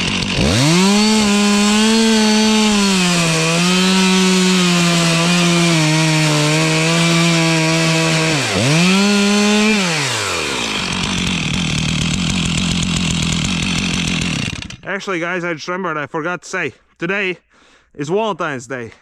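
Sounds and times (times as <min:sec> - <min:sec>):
chainsaw cutting wood: 0:00.0 - 0:14.9.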